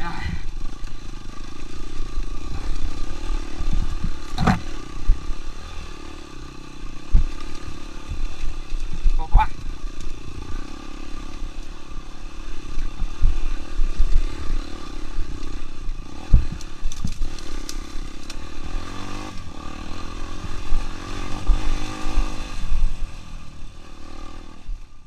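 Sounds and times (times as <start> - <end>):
motorcycle engine revving: 0.0 - 25.0
low thumps: 3.5 - 5.2.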